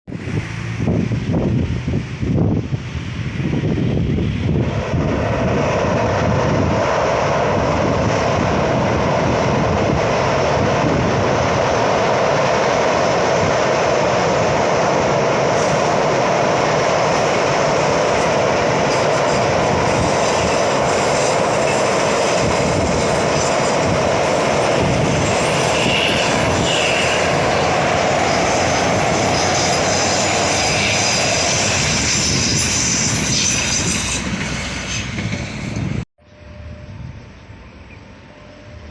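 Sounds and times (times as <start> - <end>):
train wheels on rails: 0.1 - 36.7
train wheel squeals: 15.6 - 38.9.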